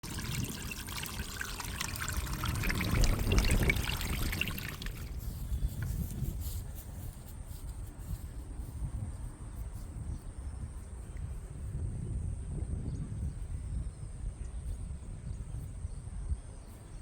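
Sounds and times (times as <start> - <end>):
water trickling: 0.0 - 5.8
low rumble: 1.9 - 5.2.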